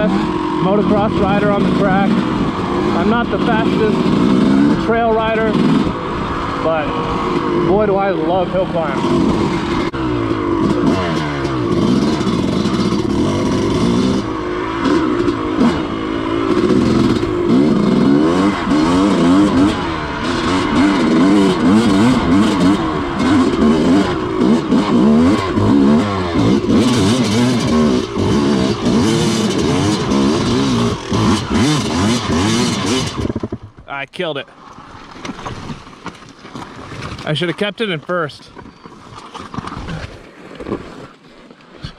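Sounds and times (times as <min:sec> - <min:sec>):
dirt bike engine revving: 0:00.0 - 0:33.8
bike knocking and rattling: 0:07.2 - 0:33.9.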